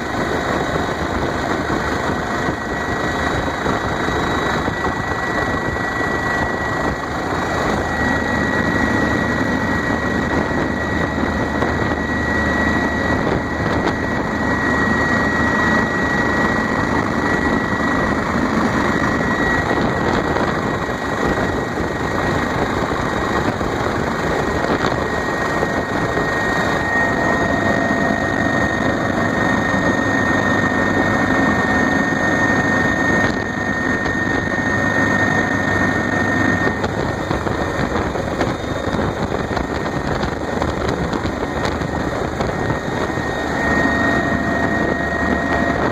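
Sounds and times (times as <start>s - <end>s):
helicopter engine and rotors: 0.0s - 45.9s
high turbine whine: 0.0s - 45.9s.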